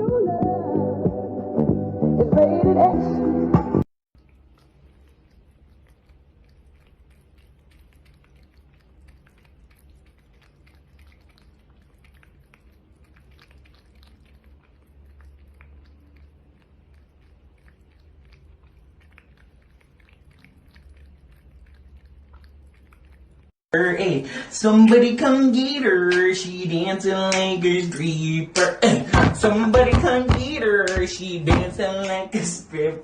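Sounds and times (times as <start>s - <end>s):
cat chewing food: 4.1s - 23.6s.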